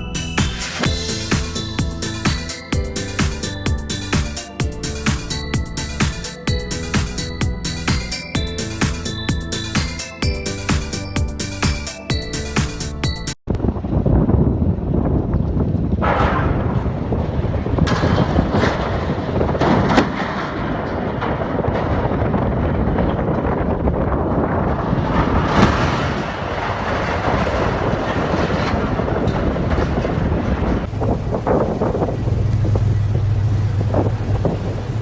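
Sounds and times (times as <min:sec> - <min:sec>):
wind buffeting microphone: 0:13.5 - 0:35.0
diesel tractor engine running hard: 0:25.7 - 0:35.0.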